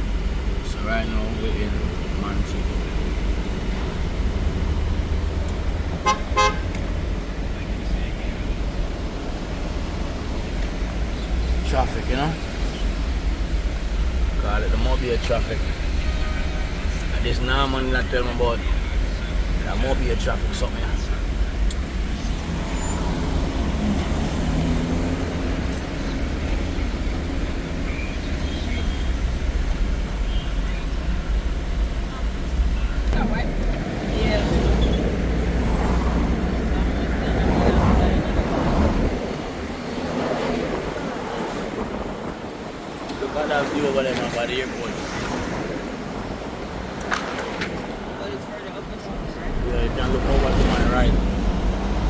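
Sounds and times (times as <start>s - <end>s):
road traffic rumble: 0.0s - 52.0s
car horn beeps: 6.0s - 6.8s.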